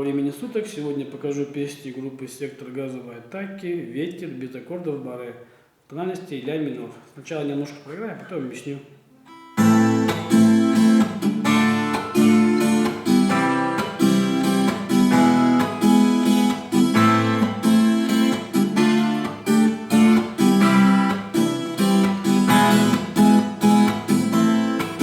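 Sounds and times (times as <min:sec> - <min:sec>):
guitar strumming chords: 0:09.3 - 0:25.0.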